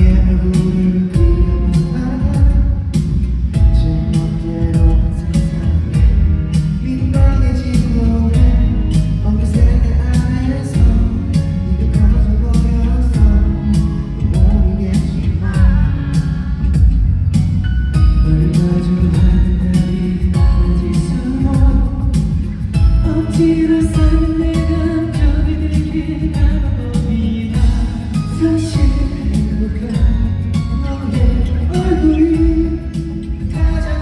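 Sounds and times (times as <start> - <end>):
men singing: 0.0 - 2.8, 3.8 - 16.9, 18.0 - 34.0
pop ballad over loudspeakers: 0.0 - 34.0.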